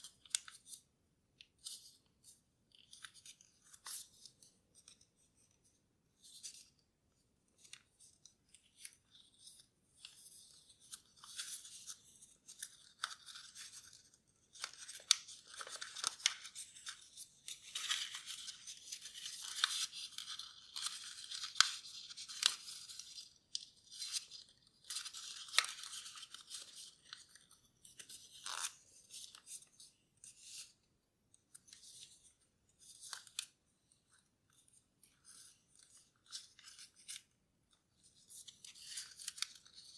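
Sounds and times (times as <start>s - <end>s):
paper crinkling and rustling: 7.5s - 30.7s, 34.5s - 37.4s, 38.0s - 39.9s.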